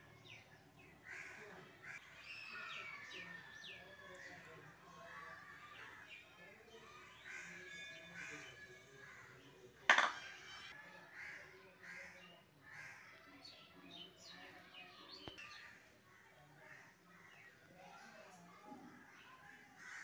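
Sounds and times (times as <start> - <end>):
birds calling: 7.0 - 10.7.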